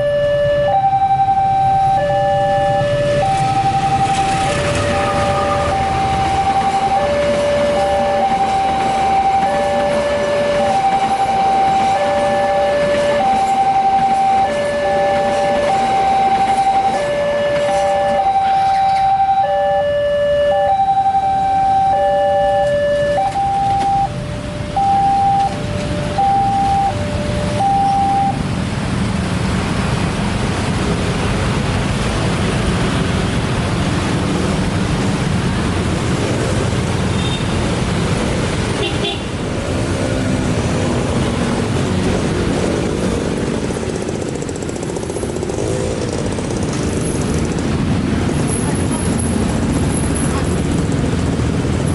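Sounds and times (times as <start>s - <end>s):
two-tone level-crossing alarm: 0.0s - 28.4s
road vehicle engines rumbling: 0.0s - 51.9s.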